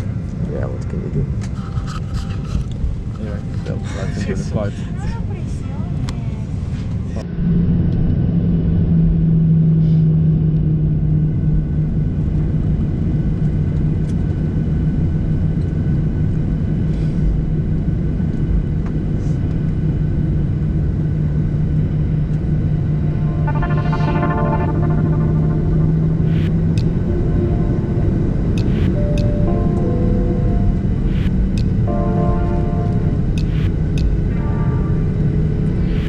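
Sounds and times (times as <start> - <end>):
airliner cabin hum and rumble: 0.0 - 24.1.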